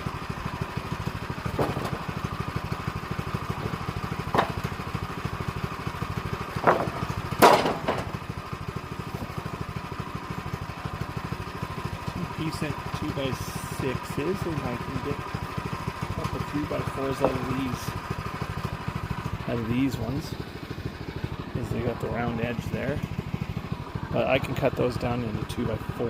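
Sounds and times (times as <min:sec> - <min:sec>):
small engine idling: 0:00.0 - 0:26.0
sharp knocks: 0:01.5 - 0:02.1, 0:03.7 - 0:04.7, 0:06.5 - 0:08.2.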